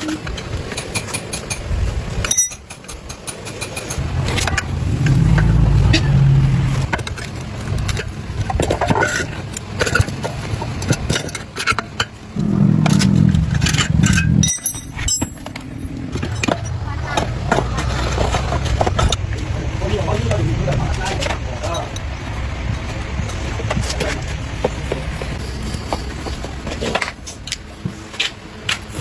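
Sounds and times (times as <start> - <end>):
engine revving: 3.9 - 8.1, 12.4 - 21.4.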